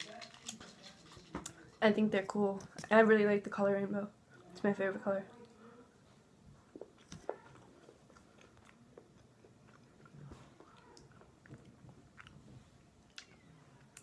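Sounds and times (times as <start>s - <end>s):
person chewing candy: 6.6s - 14.0s.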